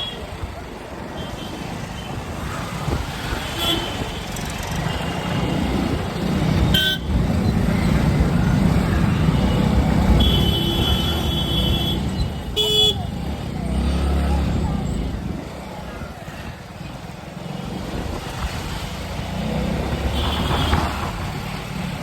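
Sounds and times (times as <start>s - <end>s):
engine and wind rumble: 0.0s - 22.0s
vehicle horns honking: 6.7s - 7.2s, 9.2s - 13.2s, 20.0s - 21.1s.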